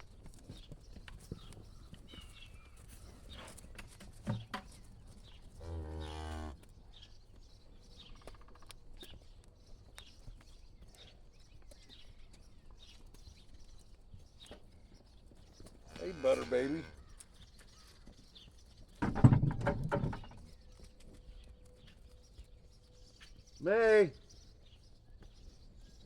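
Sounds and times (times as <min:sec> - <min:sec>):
cow mooing: 0:05.6 - 0:06.6, 0:15.9 - 0:17.0.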